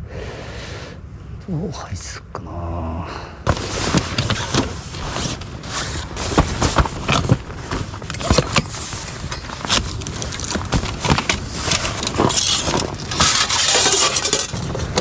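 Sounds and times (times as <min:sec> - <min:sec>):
gear rustling: 0:03.5 - 0:15.0
small knocks and clatters: 0:03.5 - 0:15.0.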